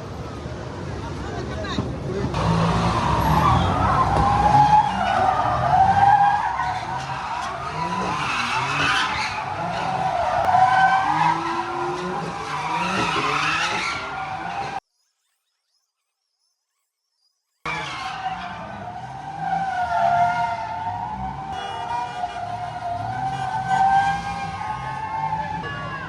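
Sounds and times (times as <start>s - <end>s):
engine revving: 2.2s - 14.8s
tyres squealing: 2.4s - 14.8s.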